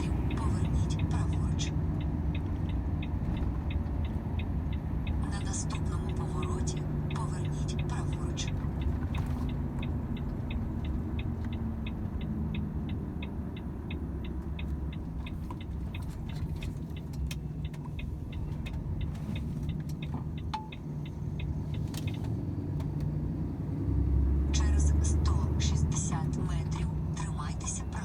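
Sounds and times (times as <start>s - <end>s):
truck engine and road rumble: 0.0s - 28.0s
turn indicator ticking: 0.0s - 28.0s.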